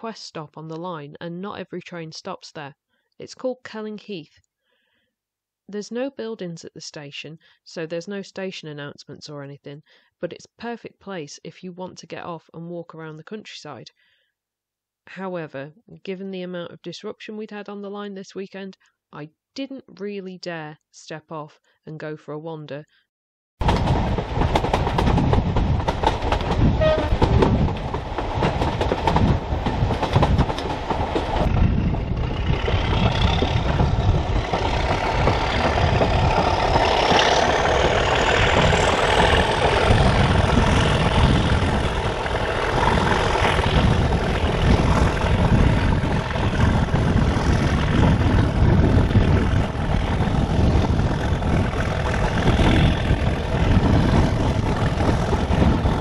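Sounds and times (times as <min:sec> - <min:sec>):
train running noise: 0:23.6 - 0:56.0
wheels knocking: 0:23.6 - 0:56.0.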